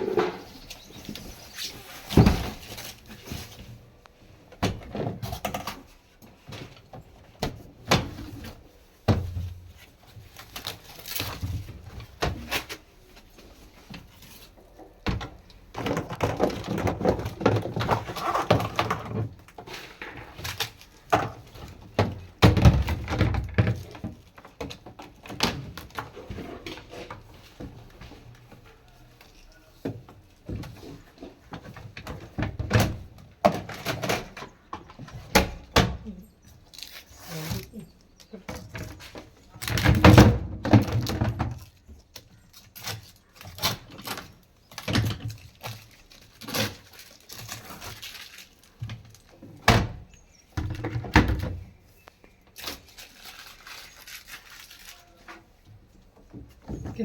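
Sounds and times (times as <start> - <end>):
packaging rustling: 41.6 - 49.3, 52.2 - 55.5.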